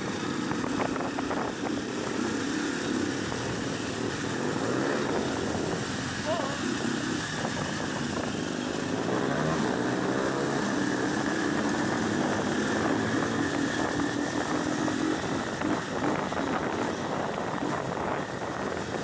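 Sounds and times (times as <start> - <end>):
motorcycle engine running: 0.0 - 19.0
noisy rush: 0.0 - 19.0.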